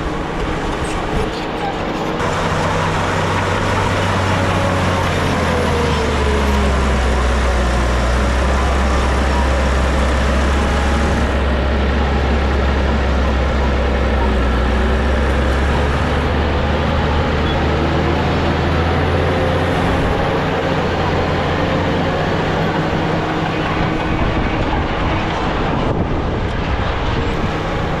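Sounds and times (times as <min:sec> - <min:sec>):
heavy machinery diesel engine: 0:00.0 - 0:28.0.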